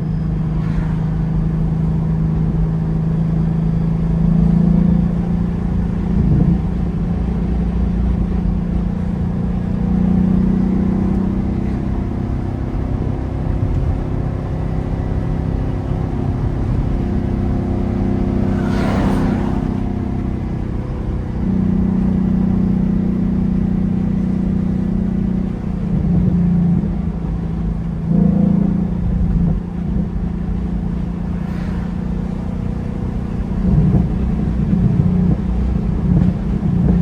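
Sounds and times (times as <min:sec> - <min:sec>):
car engine running while driving: 0:00.0 - 0:37.0
short whoosh: 0:16.3 - 0:21.1, 0:30.9 - 0:34.3.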